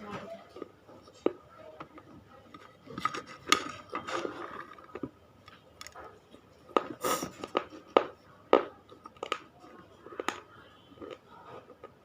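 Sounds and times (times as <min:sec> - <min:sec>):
chewing brittle clay crunches: 0:08.9 - 0:12.0.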